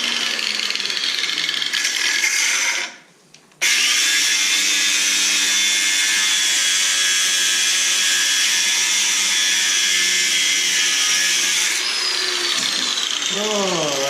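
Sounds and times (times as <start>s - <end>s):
power tool motor whining: 3.6s - 14.0s.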